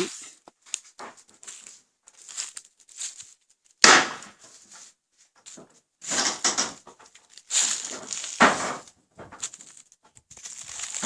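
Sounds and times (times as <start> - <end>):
loud sharp bang: 3.8 - 4.3
debris knocks and scrapes: 4.2 - 11.0.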